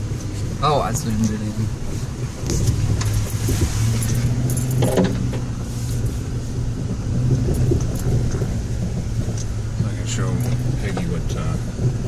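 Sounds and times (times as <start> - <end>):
truck engine droning: 0.0 - 12.0
rattling and clinking: 2.5 - 6.2.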